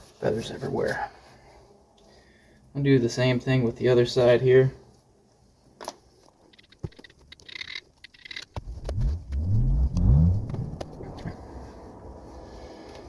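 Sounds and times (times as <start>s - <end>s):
vehicle engine revving: 8.6s - 13.0s.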